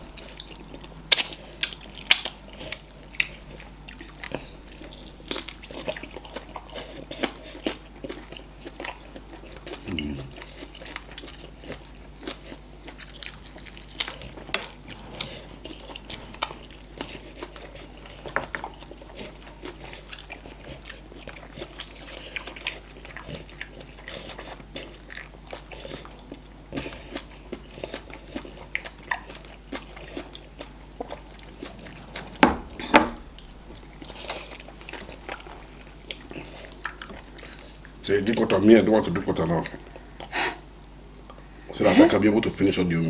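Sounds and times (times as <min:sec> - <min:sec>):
people chewing food: 0:00.0 - 0:43.0
loud thumps: 0:32.2 - 0:33.8.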